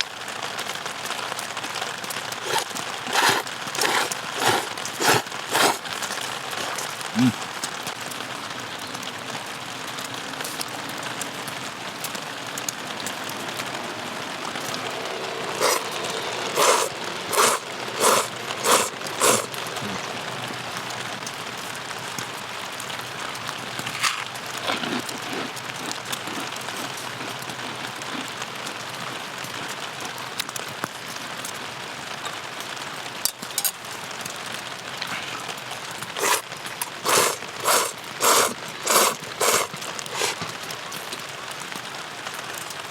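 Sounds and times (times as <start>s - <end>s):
steady rain falling: 0.0s - 42.9s
loud crunching strokes: 2.3s - 7.4s, 14.5s - 20.1s, 23.8s - 28.4s, 36.2s - 41.2s.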